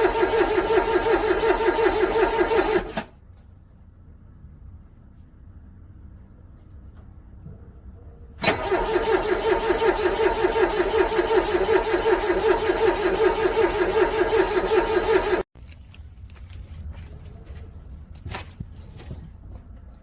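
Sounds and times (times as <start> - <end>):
car starter cranking engine: 0.0 - 3.2, 8.4 - 15.5.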